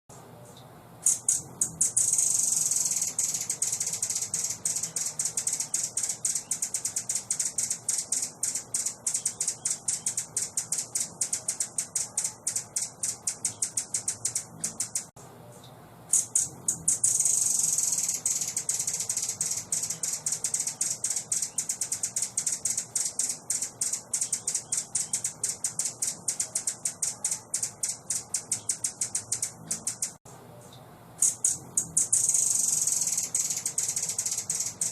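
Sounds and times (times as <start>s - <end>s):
small bird rattling call: 1.0s - 15.1s, 16.1s - 30.2s, 31.2s - 34.9s.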